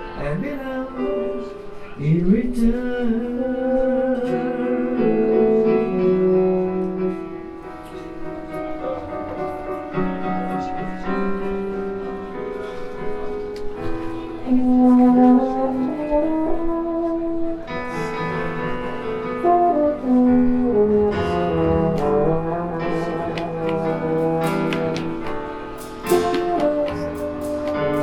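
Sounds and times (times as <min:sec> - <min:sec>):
jazz piano chords: 0:00.0 - 0:28.0
french horn melody: 0:14.1 - 0:28.0
light percussive strikes: 0:21.8 - 0:28.0.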